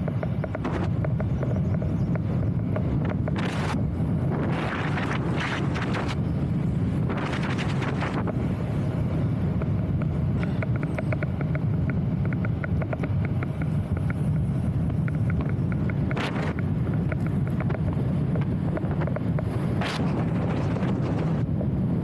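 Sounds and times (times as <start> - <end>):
wind buffeting microphone: 0.0 - 22.0
quick light ticks: 9.6 - 19.6.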